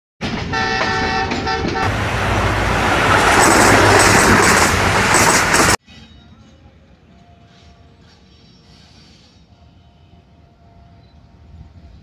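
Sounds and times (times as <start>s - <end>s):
train rushing past: 0.2s - 5.8s.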